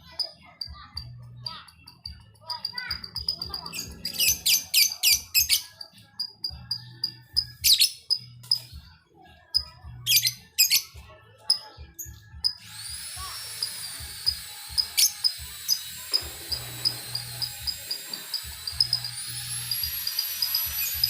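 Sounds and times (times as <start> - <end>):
high-pitched ringing: 0.1 - 7.6, 12.4 - 21.0.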